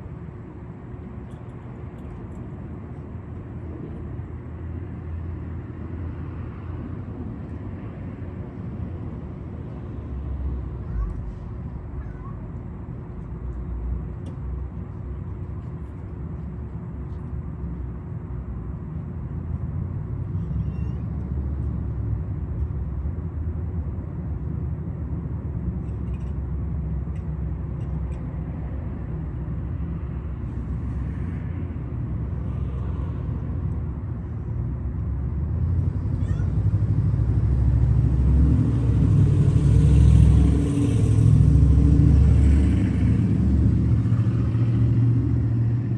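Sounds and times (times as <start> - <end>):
vehicle engine rumble: 0.0 - 45.9
faint cat meows: 20.3 - 21.2, 36.2 - 36.6.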